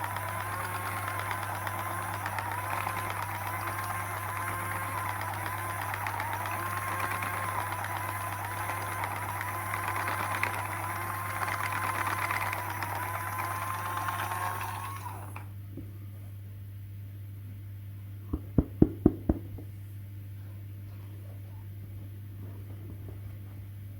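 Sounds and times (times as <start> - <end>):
small electric motor whining: 0.0 - 15.4.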